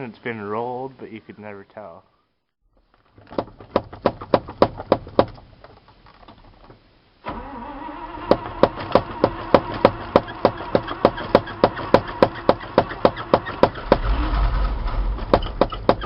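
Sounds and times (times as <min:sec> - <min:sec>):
truck engine starting and running: 0:07.2 - 0:16.0.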